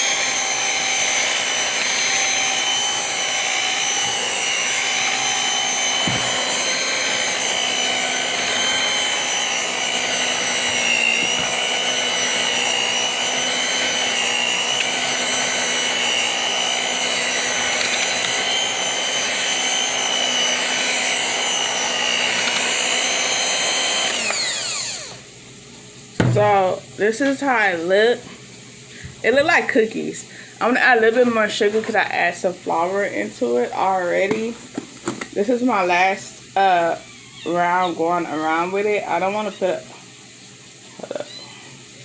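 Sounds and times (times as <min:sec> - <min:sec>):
electric mixer whining: 0:00.0 - 0:25.4, 0:35.2 - 0:39.9.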